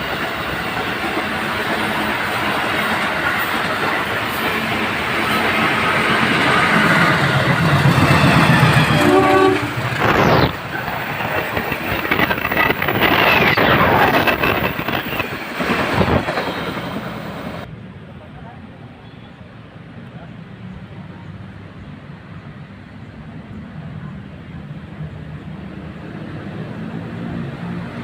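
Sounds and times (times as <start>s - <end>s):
train wheels clattering on track: 0.0s - 17.7s
train horn blast: 8.0s - 10.3s.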